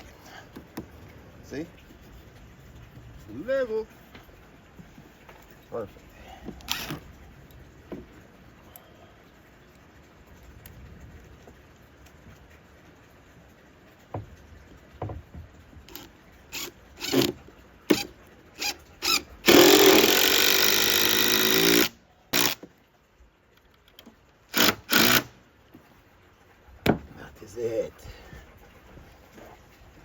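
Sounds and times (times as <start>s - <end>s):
power drill driving screws into wood: 6.7s - 7.0s, 15.9s - 22.7s, 24.5s - 25.3s.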